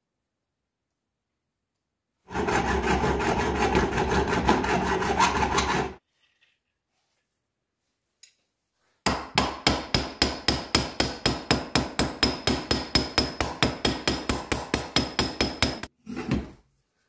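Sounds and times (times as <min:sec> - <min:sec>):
tool rasping against material: 0:02.3 - 0:06.0.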